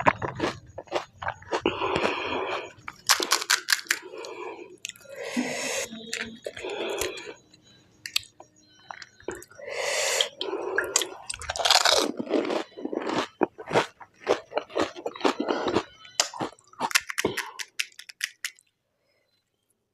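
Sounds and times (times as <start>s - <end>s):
crunching bite into crisp food: 0.0s - 4.0s, 11.4s - 18.5s
chewing: 0.0s - 7.4s, 10.2s - 18.7s.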